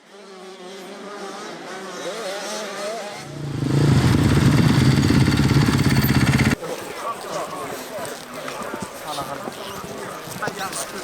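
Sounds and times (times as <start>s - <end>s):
low pulsing motorbike engine: 3.2s - 6.6s
motocross bikes revving: 3.2s - 6.6s.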